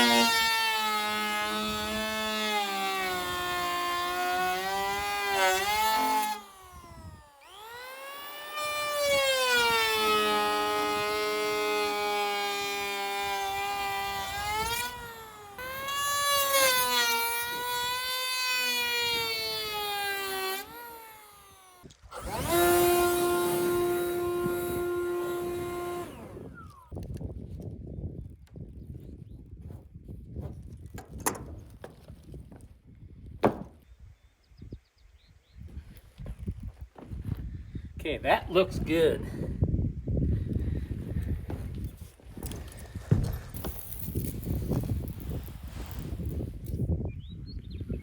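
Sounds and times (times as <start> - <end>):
power tool cutting wood: 0.0 - 27.1.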